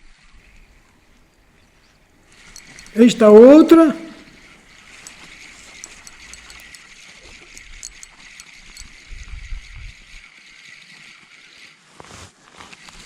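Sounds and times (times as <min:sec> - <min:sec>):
faint ticks and clicks: 0:04.2 - 0:09.0
wind rumble on microphone: 0:08.8 - 0:10.2.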